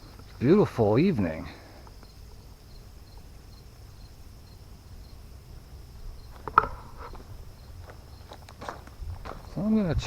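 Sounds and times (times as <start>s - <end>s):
crickets chirping: 0.0s - 10.0s
sharp crack: 6.4s - 7.1s.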